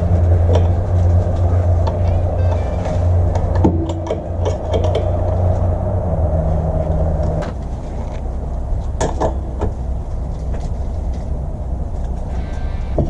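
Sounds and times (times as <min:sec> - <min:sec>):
sharp metallic clicks and knocks: 0:00.1 - 0:05.6, 0:08.8 - 0:09.8.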